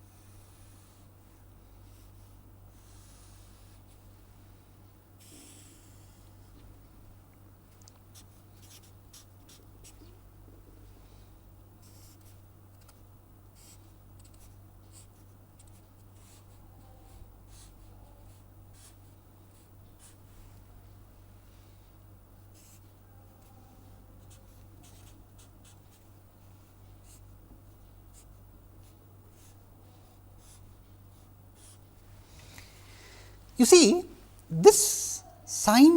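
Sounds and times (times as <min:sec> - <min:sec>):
faint electrical hum: 0:00.0 - 0:35.9
pen scratching on paper: 0:13.6 - 0:16.6, 0:24.2 - 0:26.1.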